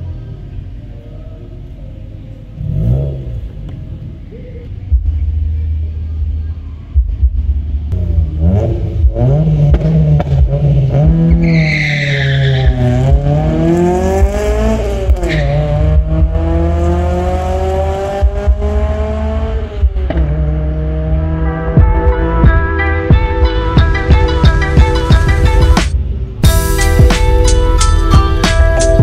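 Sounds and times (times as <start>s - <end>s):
heavy low rumble: 0.0s - 11.4s
car engine revving through gears: 2.5s - 4.0s, 7.7s - 26.4s
tire squeal: 11.1s - 13.2s, 15.2s - 15.9s.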